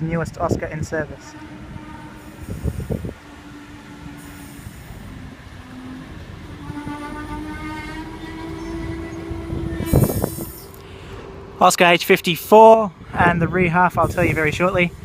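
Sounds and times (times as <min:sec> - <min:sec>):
electric train arriving: 0:00.4 - 0:15.0
train whine: 0:00.8 - 0:15.0.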